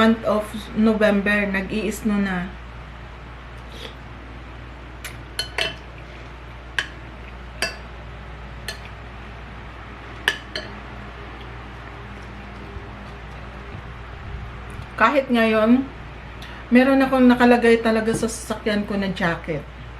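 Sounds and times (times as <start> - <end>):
cutlery clinking against a dish: 5.4 - 5.9, 7.6 - 7.9, 8.6 - 8.9, 10.3 - 10.8.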